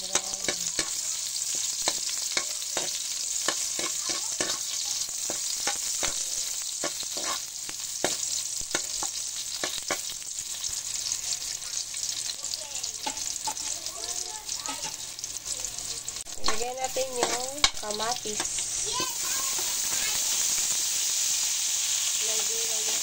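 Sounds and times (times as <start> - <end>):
metal spatula scraping a pan: 0.0 - 11.2, 14.6 - 15.0, 16.4 - 22.0
garlic and onion sizzling in oil: 0.0 - 23.0.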